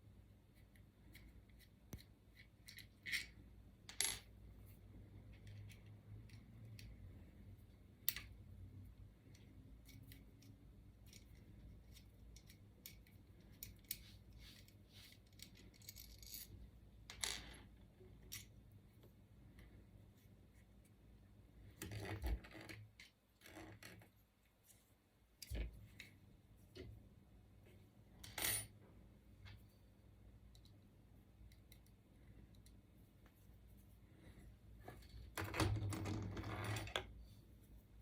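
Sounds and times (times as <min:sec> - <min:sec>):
clicks of small metal parts: 0:09.2 - 0:14.1.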